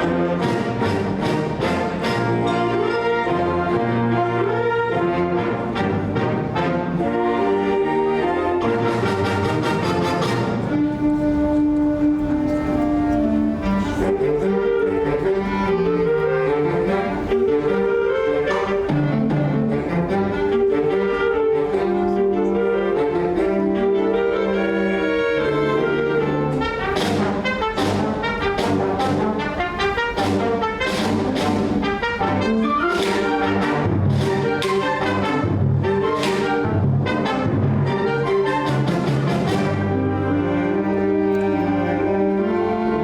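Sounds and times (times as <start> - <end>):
concert ensemble playing: 0.0 - 43.0.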